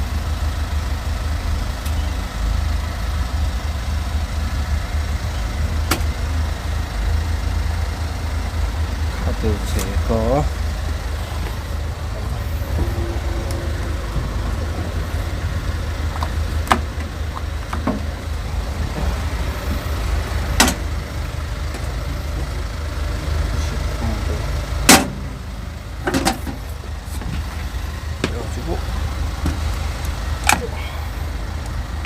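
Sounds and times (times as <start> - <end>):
steady low rumble: 0.0 - 32.0
sharp clicks and clunks: 16.0 - 18.5, 20.6 - 20.9.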